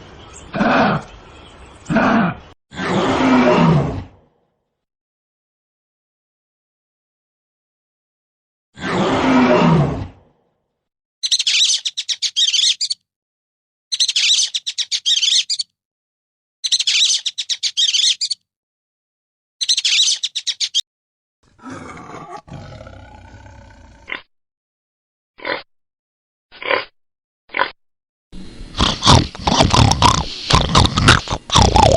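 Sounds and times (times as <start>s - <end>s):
bird chirping high-pitched: 11.2s - 13.0s, 13.9s - 15.7s, 16.6s - 18.4s, 19.6s - 20.8s
deep roar: 21.5s - 24.1s.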